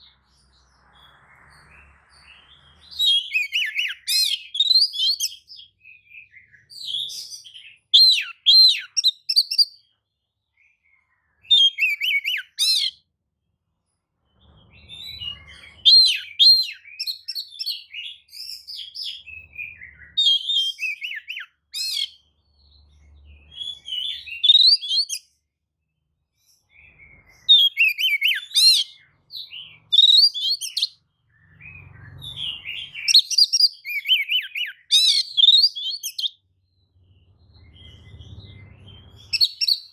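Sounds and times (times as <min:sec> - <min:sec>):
bird singing whistles and trills: 0:00.0 - 0:13.0, 0:14.4 - 0:25.4, 0:26.4 - 0:39.9.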